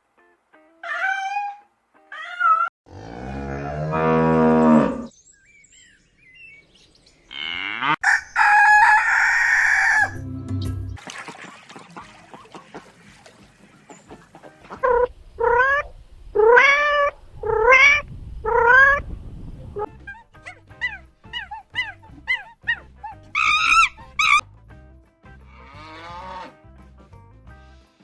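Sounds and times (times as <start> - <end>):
animal calls: 13.8 - 19.1, 19.8 - 24.4.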